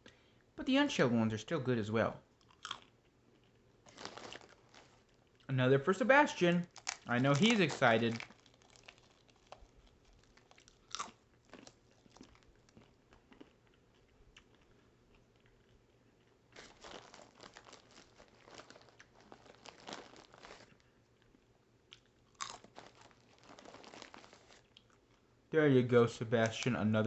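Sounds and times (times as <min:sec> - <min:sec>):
peanut shells cracking: 0:06.6 - 0:15.2, 0:22.0 - 0:25.0.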